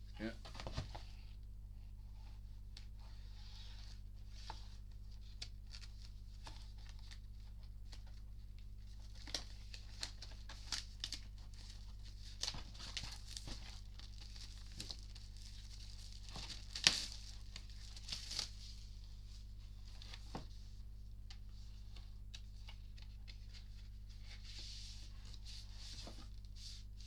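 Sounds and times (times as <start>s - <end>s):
packaging crinkling and tearing: 12.3s - 18.6s.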